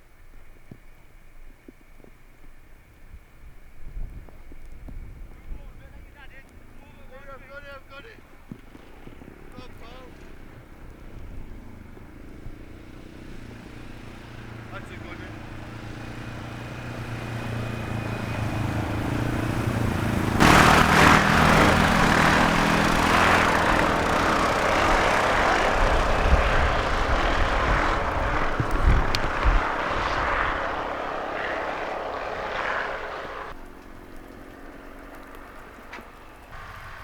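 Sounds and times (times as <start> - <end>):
car engine drone: 8.8 - 37.0
low thumps: 17.7 - 33.5
loud rushing noise: 20.1 - 33.5.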